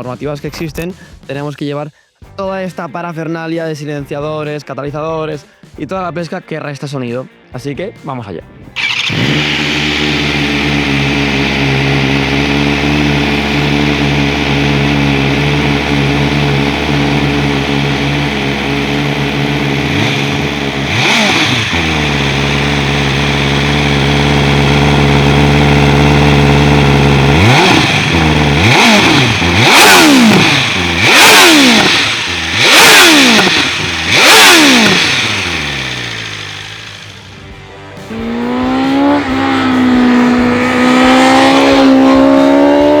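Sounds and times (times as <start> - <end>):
motorcycle engine idling and revving: 8.8 - 43.0.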